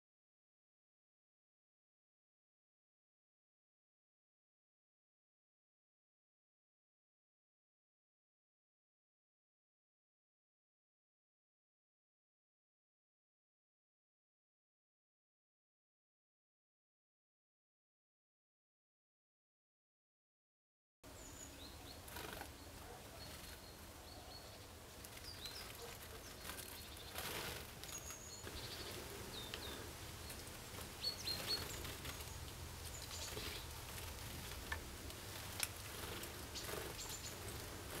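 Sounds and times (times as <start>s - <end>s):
small birds chirping: 21.1s - 38.0s.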